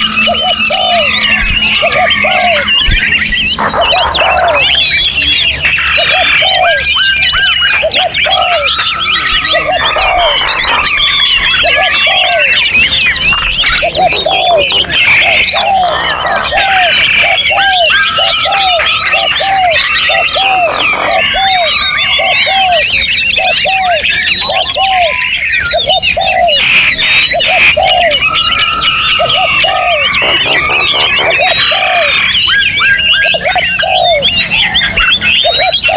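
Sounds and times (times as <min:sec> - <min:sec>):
low arched bird note: 0:00.0 - 0:04.8
songbird chorus: 0:00.0 - 0:35.9.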